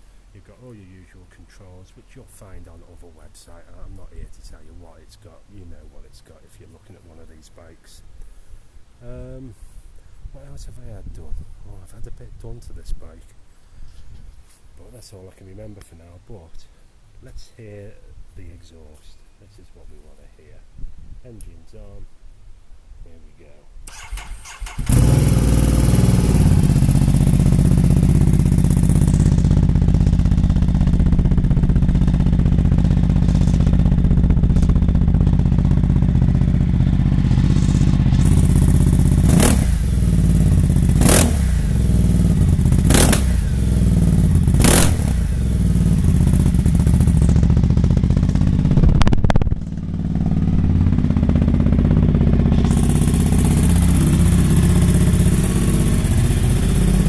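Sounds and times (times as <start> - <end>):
motorcycle throttle blips: 23.9 - 57.0
motorcycle engine idling unevenly: 24.9 - 57.0.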